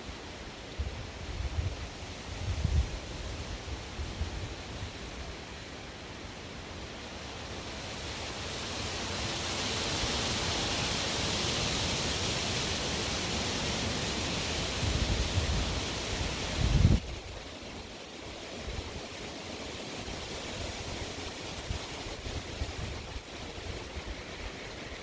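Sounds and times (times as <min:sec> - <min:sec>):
strong wind gusting: 0:14.8 - 0:17.4
wind buffeting microphone: 0:16.6 - 0:17.4.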